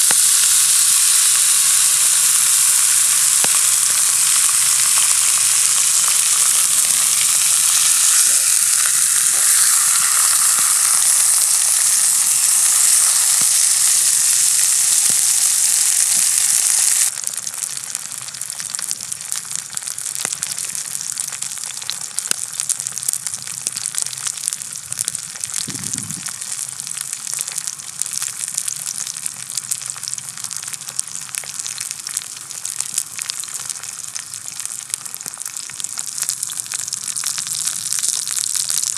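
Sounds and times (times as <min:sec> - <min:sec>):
small pops: 0:00.0 - 0:17.1
steak sizzling in a frying pan: 0:00.0 - 0:38.9.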